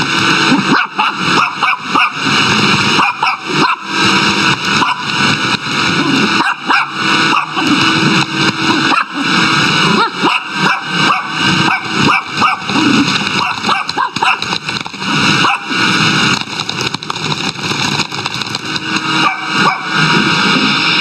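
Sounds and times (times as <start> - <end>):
vacuum cleaner running: 0.0 - 21.0
dog barking and yipping: 0.6 - 2.3, 2.9 - 4.0, 4.7 - 5.2, 6.2 - 7.8, 8.8 - 14.6, 15.3 - 15.9, 19.1 - 20.0.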